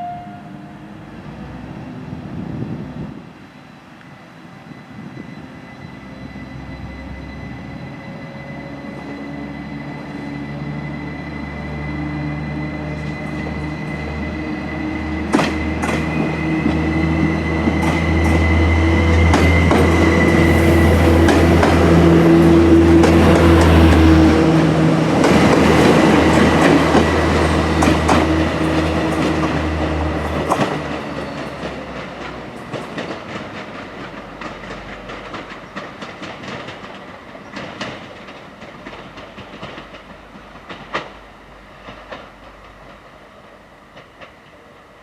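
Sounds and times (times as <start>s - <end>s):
diesel train engines whining: 0.0s - 45.0s
wheels clacking over rail joints: 15.2s - 43.2s.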